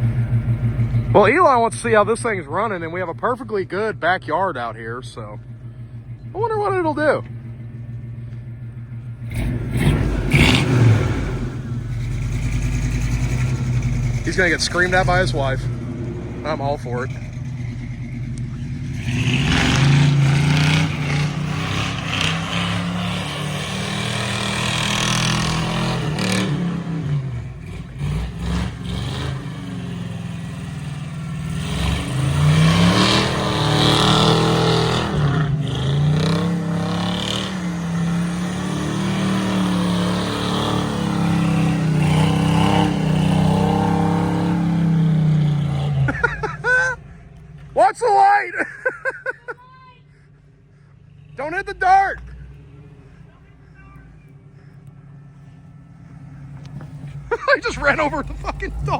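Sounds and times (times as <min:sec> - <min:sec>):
truck engine revving: 0:00.0 - 0:49.5, 0:50.1 - 0:58.9.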